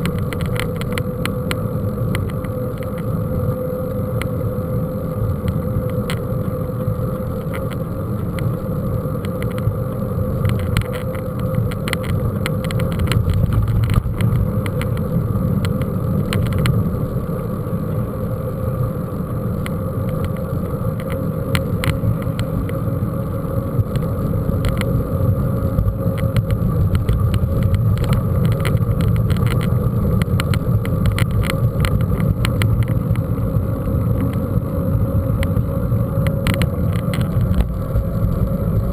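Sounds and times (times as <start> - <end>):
bike rattles and clicks: 0.0 - 3.2, 5.2 - 17.2, 19.6 - 38.9
bike rumbling over rough ground: 9.2 - 17.1, 20.0 - 38.9.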